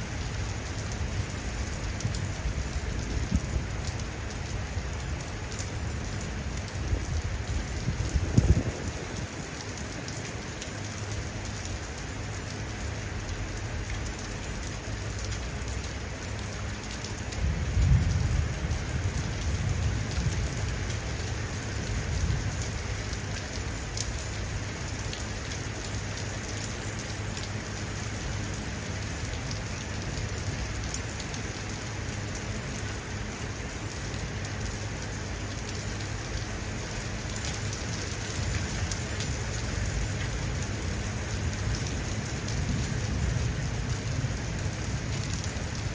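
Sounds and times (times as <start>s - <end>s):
heavy rain on hard surfaces: 0.0s - 45.9s
low rumble of thunder: 0.1s - 5.2s, 6.5s - 9.7s, 17.3s - 24.3s, 38.3s - 45.9s.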